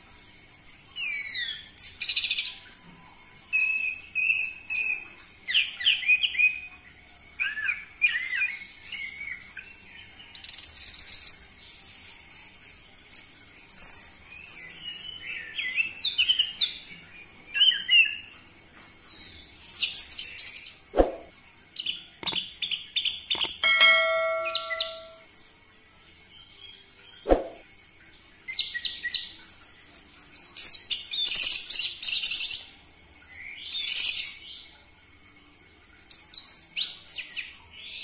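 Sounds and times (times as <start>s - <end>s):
sharp clicks: 22.2s - 22.4s, 23.3s - 23.6s
ringing held note: 23.6s - 25.4s.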